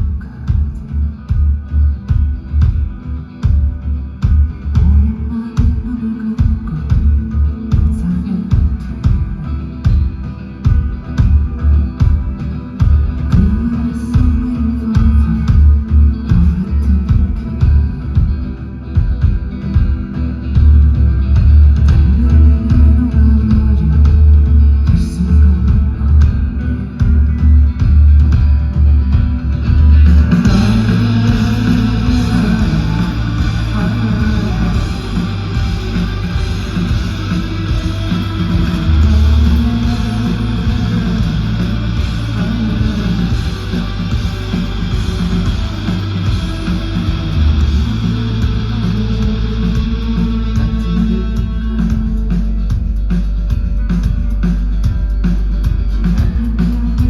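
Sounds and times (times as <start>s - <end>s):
drums: 0.0s - 57.0s
electric guitar: 0.0s - 57.0s
heavy bass line: 0.0s - 57.0s
person singing: 4.7s - 10.1s, 12.0s - 18.6s, 21.8s - 28.0s, 29.6s - 52.6s, 56.0s - 57.0s.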